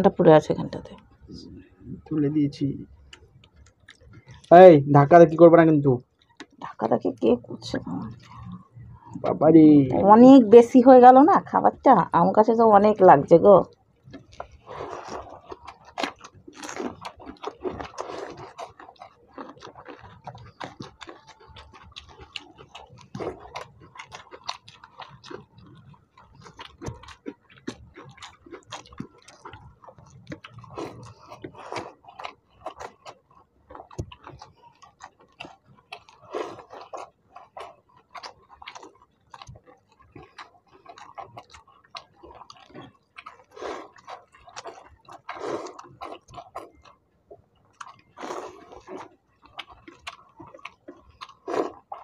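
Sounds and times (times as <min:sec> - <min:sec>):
chewing and wet mouth smacks: 0:02.8 - 0:04.5, 0:06.0 - 0:06.8, 0:13.7 - 0:52.0.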